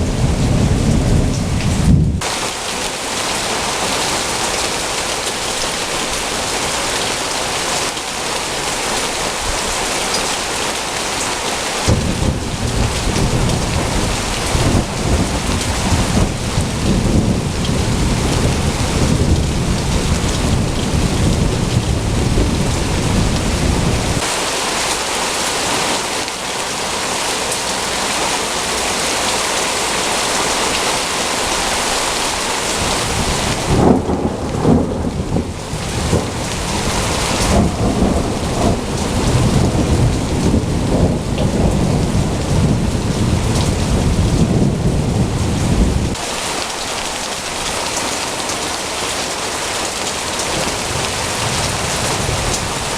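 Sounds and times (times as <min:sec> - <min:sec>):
thunder rumbling: 0:00.0 - 0:02.4, 0:11.9 - 0:24.4, 0:32.1 - 0:46.2, 0:50.4 - 0:52.9
heavy rain falling: 0:00.0 - 0:52.9.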